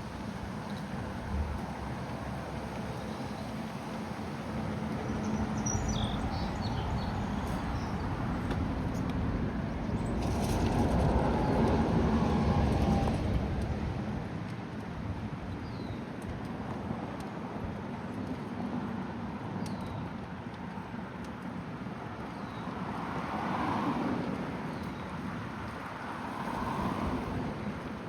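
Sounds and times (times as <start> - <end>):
road noise: 0.0 - 15.5, 20.2 - 28.0
car passing by: 5.2 - 13.8, 22.8 - 28.0.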